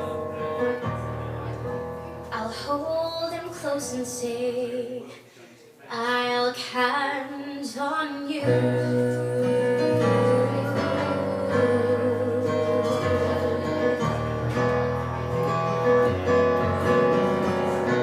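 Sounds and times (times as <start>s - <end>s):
guitar playing held chords: 0.0s - 2.3s, 8.4s - 18.0s
bass notes: 8.6s - 18.0s.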